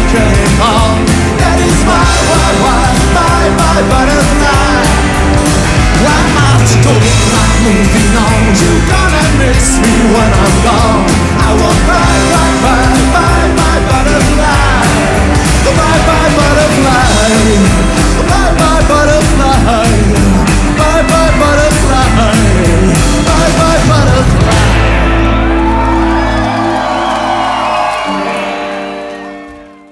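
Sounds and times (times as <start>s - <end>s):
rockabilly band playing: 0.0s - 29.9s.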